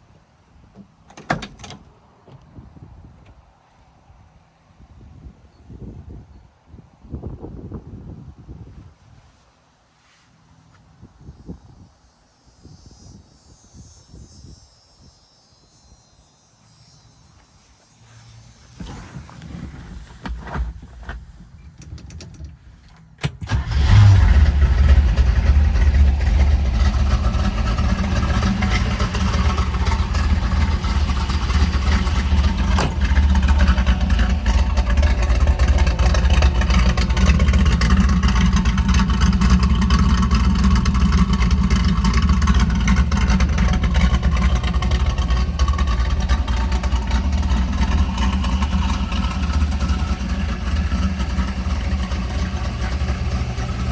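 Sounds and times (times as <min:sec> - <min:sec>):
car engine idling: 0:20.8 - 0:53.9.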